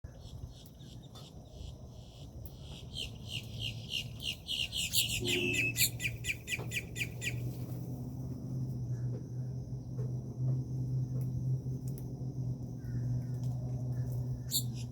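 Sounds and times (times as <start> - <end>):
low steady hum: 0.1 - 14.9
songbird calling short notes: 2.9 - 7.4.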